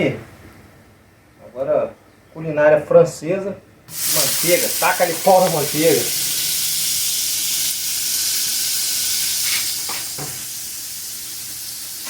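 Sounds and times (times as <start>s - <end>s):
garlic sizzling in a pan: 3.9s - 12.0s.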